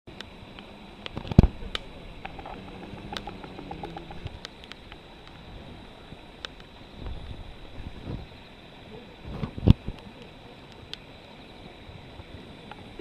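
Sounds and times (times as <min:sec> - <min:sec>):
campfire crackling: 0:00.1 - 0:13.0.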